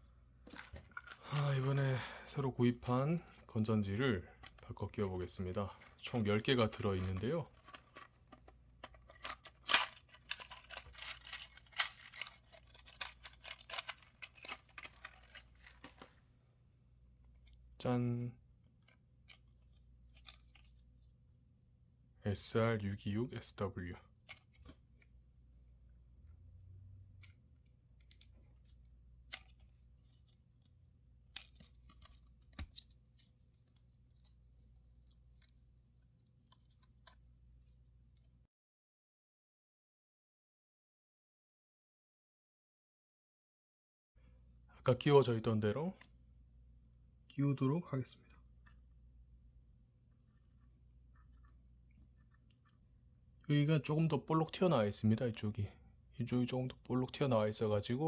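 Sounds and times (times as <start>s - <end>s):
light crinkling: 0.4s - 16.4s, 27.2s - 38.4s
plastic packaging crinkling: 0.5s - 1.8s, 4.4s - 16.2s.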